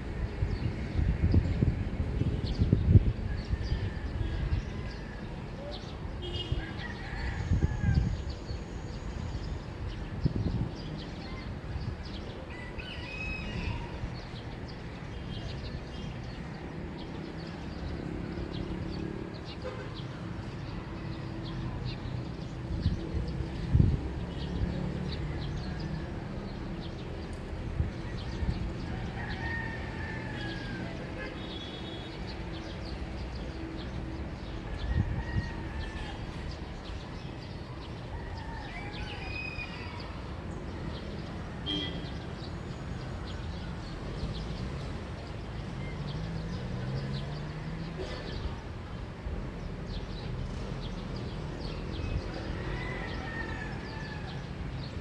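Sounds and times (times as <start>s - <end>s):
wind buffeting microphone: 0.0s - 12.5s, 21.0s - 30.3s, 32.4s - 38.4s
birds chirping: 36.0s - 48.6s.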